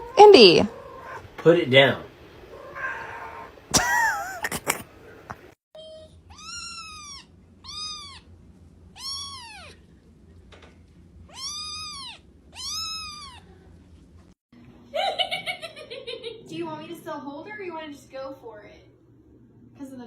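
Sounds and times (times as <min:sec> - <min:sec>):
faint steady hum: 0:00.0 - 0:20.0
cat meowing: 0:02.5 - 0:03.6, 0:06.3 - 0:08.3, 0:09.0 - 0:09.8, 0:11.3 - 0:13.5.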